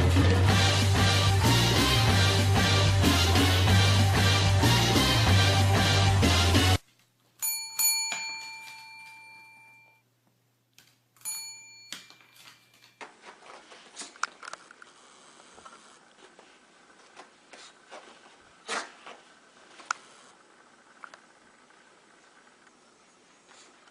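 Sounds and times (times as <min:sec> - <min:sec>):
small bell ringing: 0:07.4 - 0:10.0, 0:11.2 - 0:13.0
rustling: 0:12.2 - 0:20.3.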